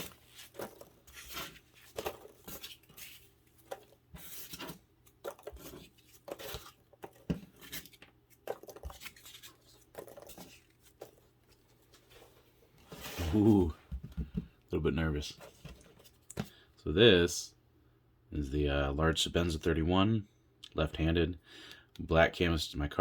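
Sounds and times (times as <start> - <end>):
packaging rustling and crinkling: 0.0 - 13.6.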